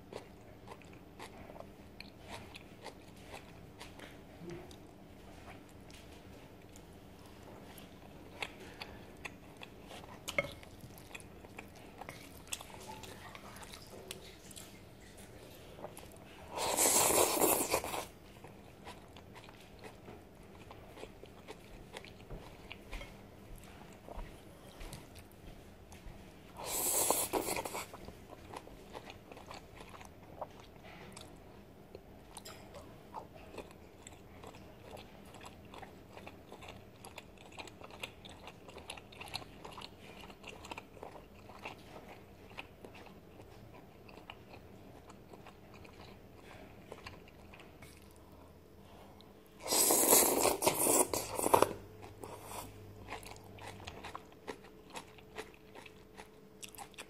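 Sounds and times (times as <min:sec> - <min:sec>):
chewing and crunching noodles: 0:00.0 - 0:57.0
loud noodle slurps: 0:49.6 - 0:51.7.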